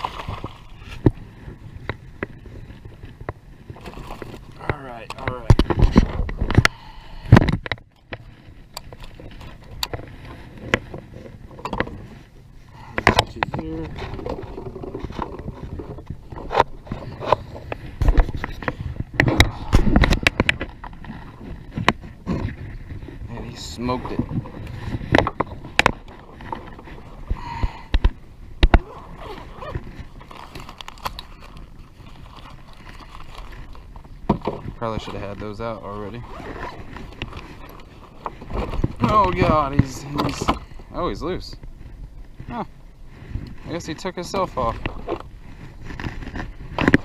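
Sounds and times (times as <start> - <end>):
knocks and clicks on a kayak: 0.0 - 12.2, 12.9 - 23.2, 24.0 - 31.2, 33.5 - 35.3, 44.3 - 47.0.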